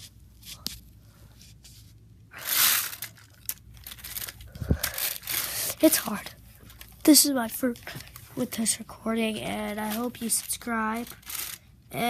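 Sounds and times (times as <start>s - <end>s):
handling noise rustling scrape: 0.0s - 5.7s, 11.0s - 11.6s.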